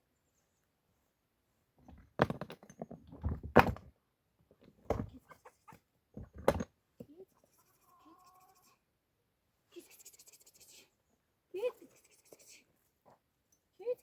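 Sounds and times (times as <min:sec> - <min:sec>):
irregular thumps and knocks: 0:01.8 - 0:03.9, 0:04.8 - 0:05.2, 0:06.2 - 0:06.7.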